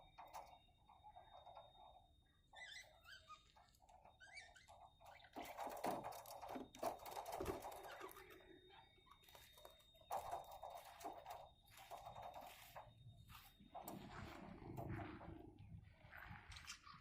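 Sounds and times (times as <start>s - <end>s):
birds pecking seeds: 2.6s - 15.1s.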